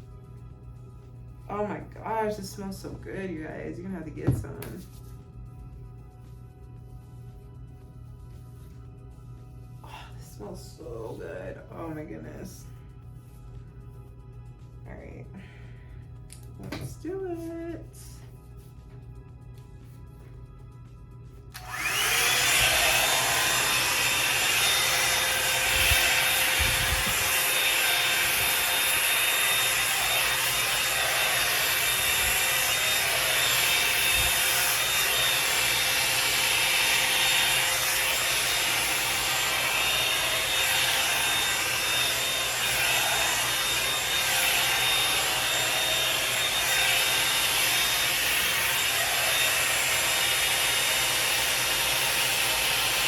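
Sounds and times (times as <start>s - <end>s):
hair dryer motor whine: 3.2s - 4.8s, 21.5s - 53.0s.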